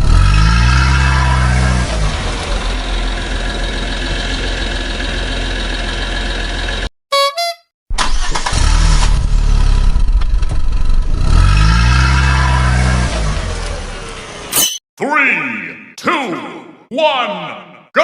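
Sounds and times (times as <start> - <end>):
horn-like honking: 7.1 - 7.7.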